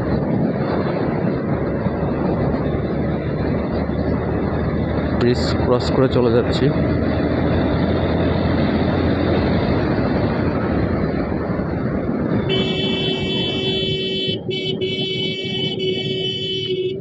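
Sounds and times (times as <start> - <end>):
wind and road noise: 0.0 - 17.0
vehicle horn: 12.4 - 17.0.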